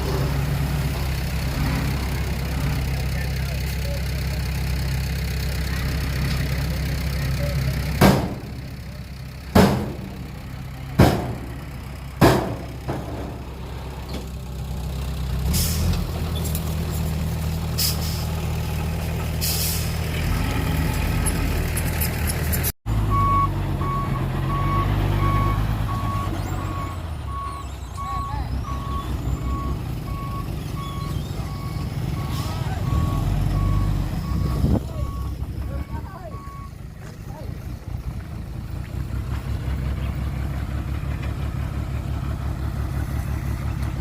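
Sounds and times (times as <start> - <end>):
heavy diesel engines running: 0.0 - 44.0
loud bangs: 8.0 - 14.1
truck reversing alarm beeping: 23.0 - 37.8.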